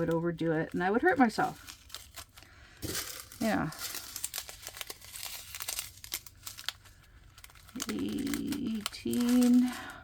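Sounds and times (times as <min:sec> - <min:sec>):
woman's voice: 0:00.0 - 0:01.6, 0:03.4 - 0:03.9, 0:07.7 - 0:10.0
plastic baggies crinkling: 0:00.0 - 0:10.0.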